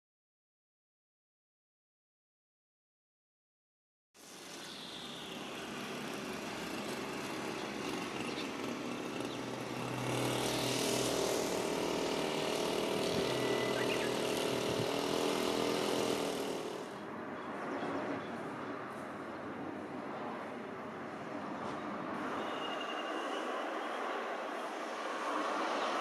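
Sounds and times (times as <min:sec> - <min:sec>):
train running past: 0:04.2 - 0:17.0, 0:18.9 - 0:26.0.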